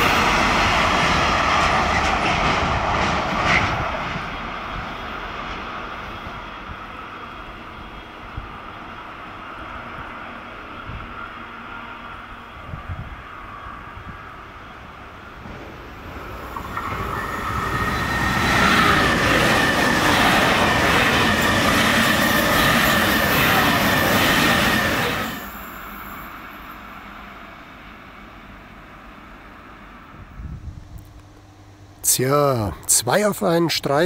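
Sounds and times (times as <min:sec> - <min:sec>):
high-speed train passing: 0:00.0 - 0:34.0.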